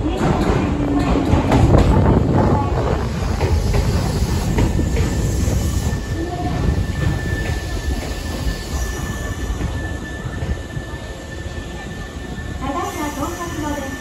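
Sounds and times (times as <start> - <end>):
train wheels rumbling on rail: 0.0 - 14.0
high wheel squeal: 4.1 - 14.0.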